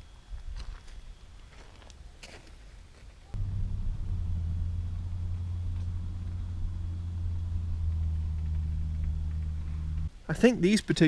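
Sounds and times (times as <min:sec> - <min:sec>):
pressure washer engine drone: 0:03.4 - 0:10.1.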